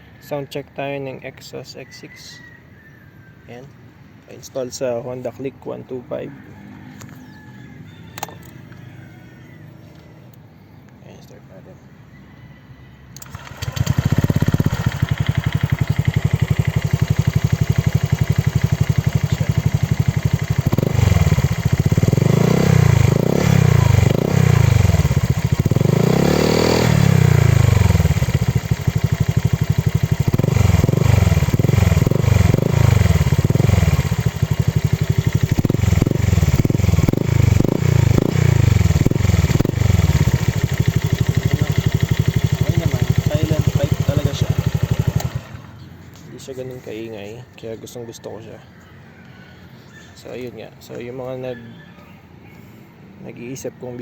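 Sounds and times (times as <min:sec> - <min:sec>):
scooter engine idling and revving: 0:13.1 - 0:47.0.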